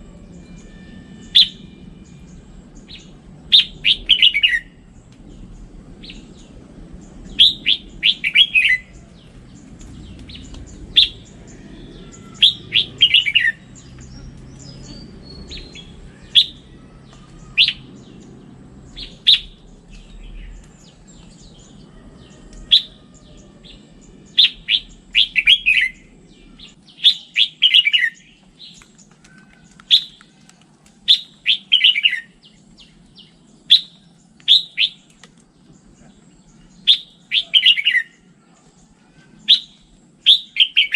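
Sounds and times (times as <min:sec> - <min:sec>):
bird singing falling phrases: 0:00.0 - 0:40.9
sharp bird call notes: 0:10.3 - 0:13.8.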